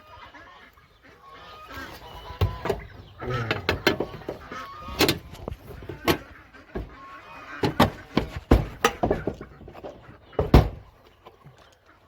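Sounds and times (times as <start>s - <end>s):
knocks and thumps: 2.3s - 10.9s.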